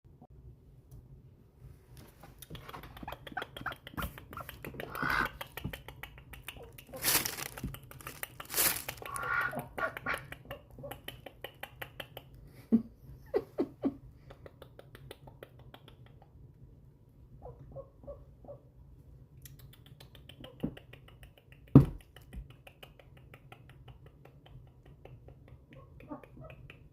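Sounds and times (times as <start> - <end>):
ducks making squeaky calls: 3.0 - 5.4, 6.6 - 10.2.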